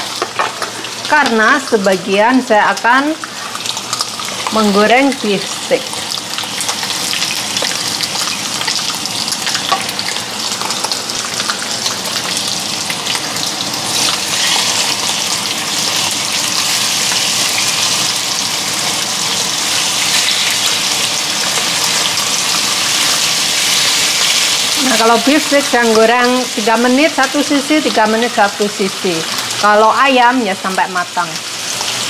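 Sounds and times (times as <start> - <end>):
steaks sizzling in hot oil: 0.0 - 32.0.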